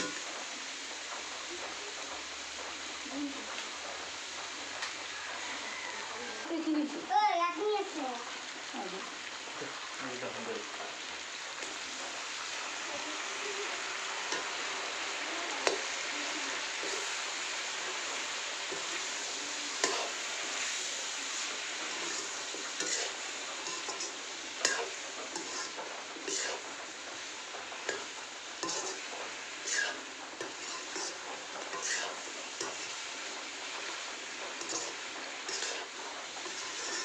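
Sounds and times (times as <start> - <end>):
spatula scraping a pan: 0.0 - 4.7, 11.6 - 37.0
chicken and potatoes sizzling: 0.0 - 37.0
spatula clacking on pan: 14.3 - 14.9, 15.6 - 16.0, 16.8 - 20.7, 21.9 - 37.0.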